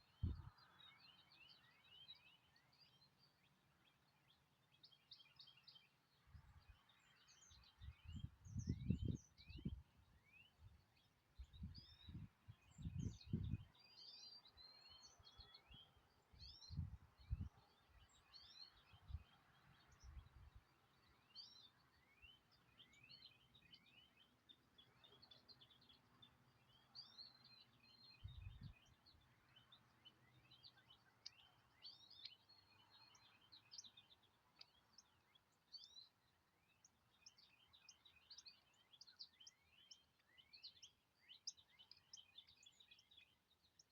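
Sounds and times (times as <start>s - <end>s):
songbirds chirping: 0.0s - 43.9s.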